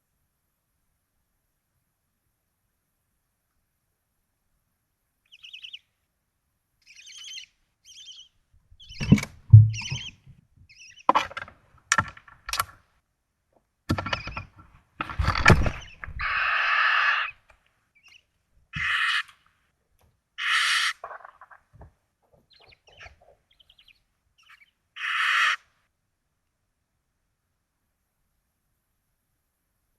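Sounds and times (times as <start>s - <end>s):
owls chittering: 5.3s - 5.8s, 6.8s - 11.1s, 15.6s - 17.4s, 18.8s - 19.3s, 20.4s - 21.6s, 22.5s - 25.6s
owl hissing screech: 16.2s - 17.4s, 18.8s - 19.3s, 20.4s - 21.0s, 25.0s - 25.6s.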